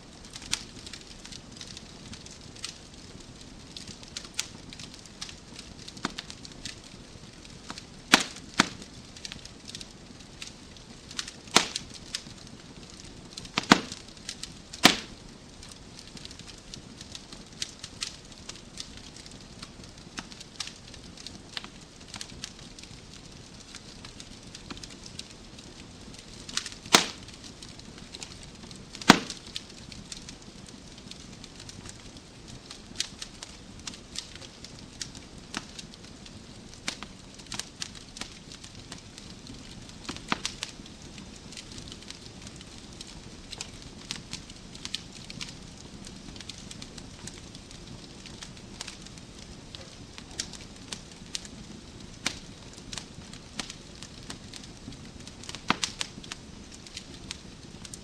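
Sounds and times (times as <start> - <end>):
wood fire crackling: 0.0 - 58.0
loud sharp pops of fire: 0.1 - 58.0
low hiss: 7.2 - 17.0.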